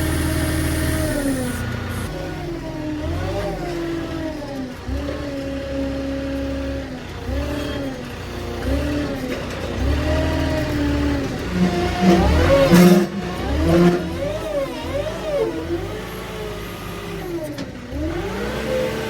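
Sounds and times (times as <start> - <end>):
truck engine running: 0.0 - 5.2.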